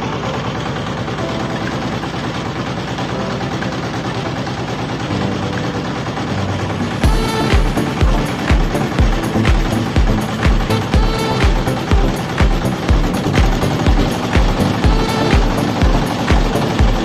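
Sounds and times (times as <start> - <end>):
boat engine chugging: 0.0 - 17.0
heavy beat background music: 5.0 - 17.0.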